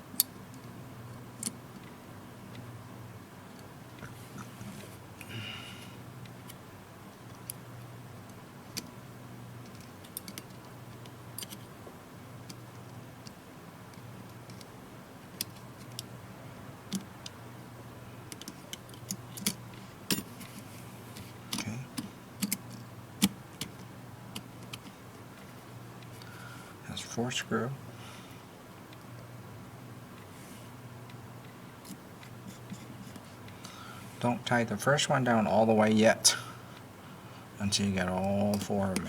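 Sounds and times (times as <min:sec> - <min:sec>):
faint low hum: 0:00.0 - 0:39.0
small clicks and taps of parts: 0:00.2 - 0:02.7, 0:07.2 - 0:07.6, 0:08.2 - 0:09.0, 0:09.6 - 0:11.7, 0:12.4 - 0:14.7, 0:15.3 - 0:16.1, 0:16.9 - 0:17.4, 0:18.3 - 0:26.4, 0:38.2 - 0:39.0.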